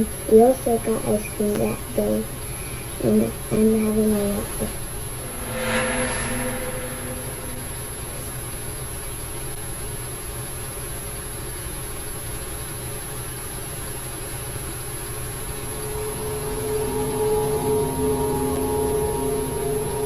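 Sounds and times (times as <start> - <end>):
sustained humming tone: 0.0 - 9.2, 15.1 - 20.0
low rumbling noise: 1.9 - 9.0, 15.3 - 20.0.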